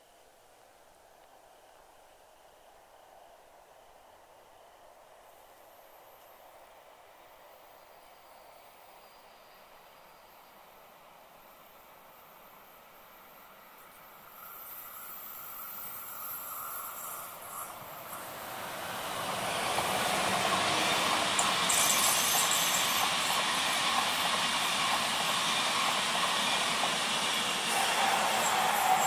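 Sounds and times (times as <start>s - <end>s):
passenger train passing: 6.9s - 29.0s.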